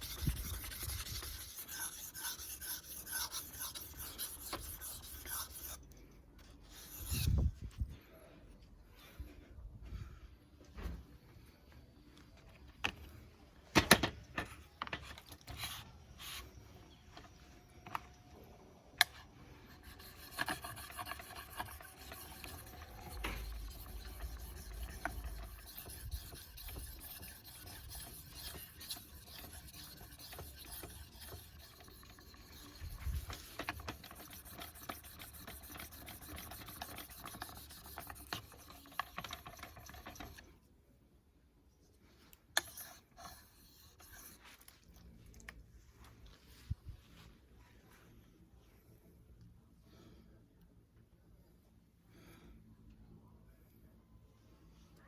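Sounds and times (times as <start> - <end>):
knife grinding on sharpening stone: 0.0 - 5.8, 19.8 - 32.8.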